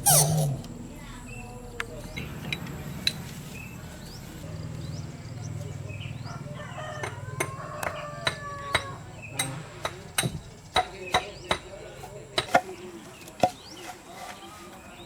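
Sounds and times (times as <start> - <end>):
rooster crowing: 5.8 - 9.3.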